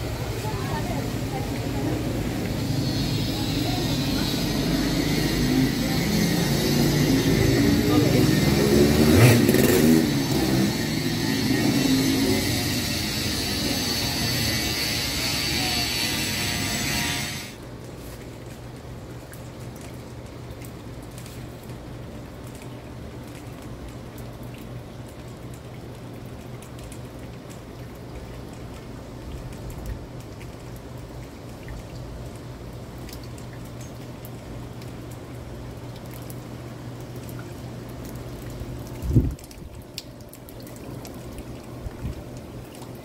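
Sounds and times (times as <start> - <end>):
heavy rain falling: 0.0 - 17.7
water drips and splashes: 0.0 - 43.0
water pouring: 0.0 - 43.0.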